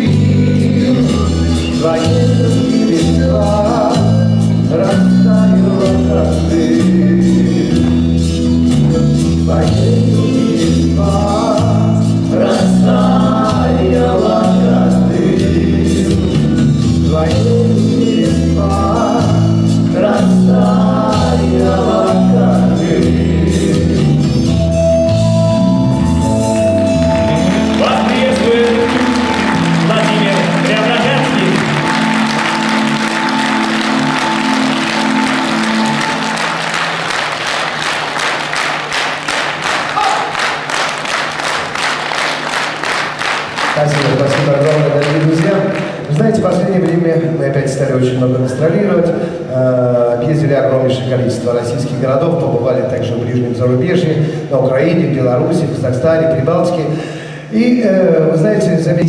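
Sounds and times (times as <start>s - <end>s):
bass line: 0.0s - 37.4s
band accompaniment: 0.0s - 40.8s
voices singing together: 9.5s - 24.3s
audience applauding: 26.5s - 46.6s.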